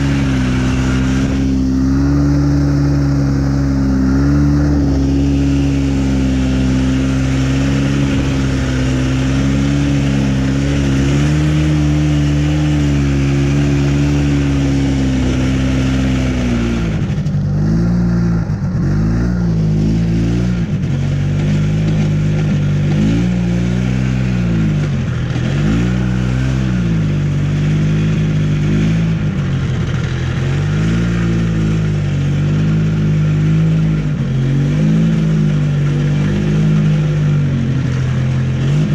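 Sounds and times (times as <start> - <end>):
snowmobile engine revving: 0.0 - 38.9.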